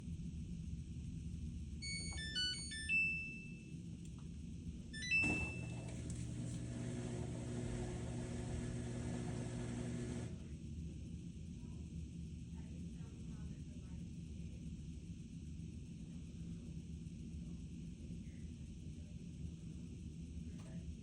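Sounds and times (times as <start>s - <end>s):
washing machine humming: 1.8s - 3.6s, 4.8s - 10.5s.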